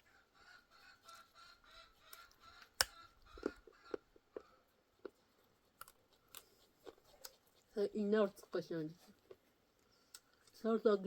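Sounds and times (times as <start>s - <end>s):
chickens clucking: 0.0s - 4.8s.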